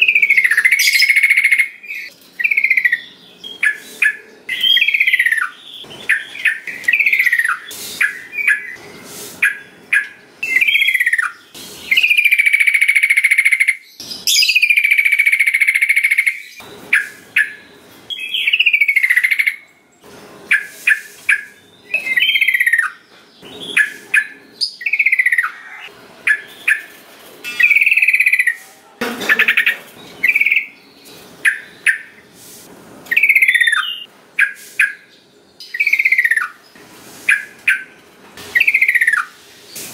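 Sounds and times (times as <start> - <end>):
bulbul whistled calls: 20.5 - 23.0, 33.1 - 36.6, 38.6 - 39.4.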